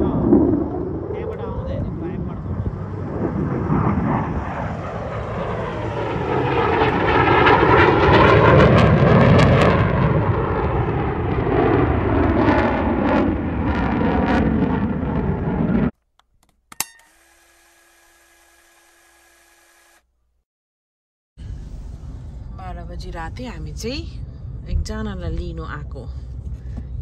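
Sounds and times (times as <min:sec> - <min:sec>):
fighter jet roaring past: 0:00.0 - 0:15.9.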